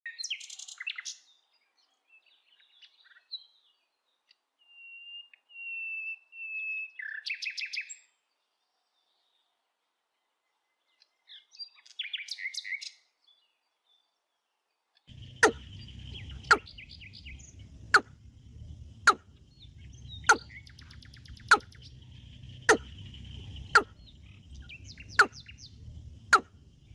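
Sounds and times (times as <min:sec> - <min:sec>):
small bird chirping: 0:00.1 - 0:01.4, 0:10.9 - 0:14.0, 0:15.1 - 0:26.9
high bird trill: 0:15.1 - 0:26.9
scattered bird chirps: 0:15.1 - 0:26.9.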